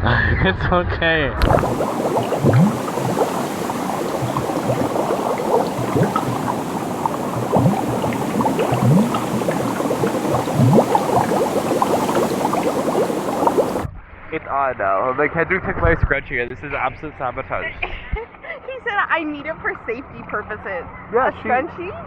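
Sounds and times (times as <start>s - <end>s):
seawater bubbling and sloshing: 1.4s - 13.9s.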